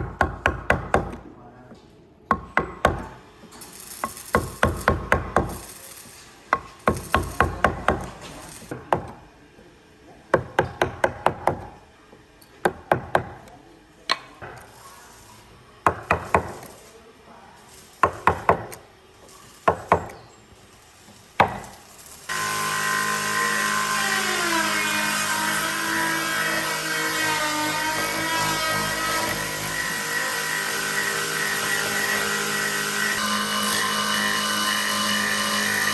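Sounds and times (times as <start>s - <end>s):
power tool running: 21.4s - 35.9s.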